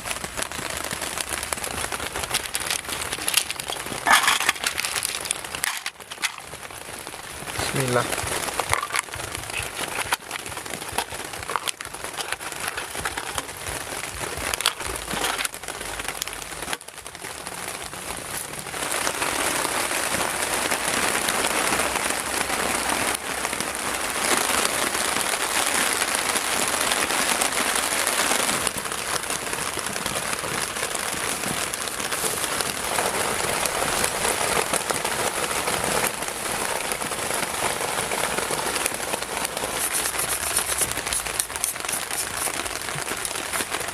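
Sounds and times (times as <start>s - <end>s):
heavy rain falling: 0.0s - 43.9s
small crackles and ticks: 0.0s - 43.9s.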